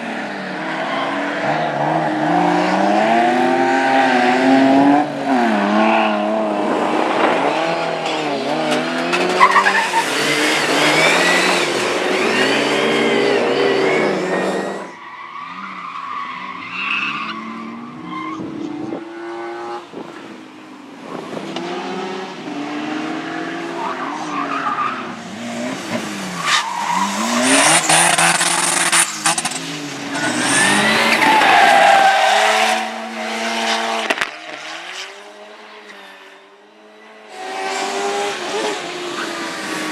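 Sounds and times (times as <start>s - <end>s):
rally car engines revving: 0.0s - 39.9s
tyres squealing and skidding: 8.0s - 18.8s, 23.6s - 35.1s.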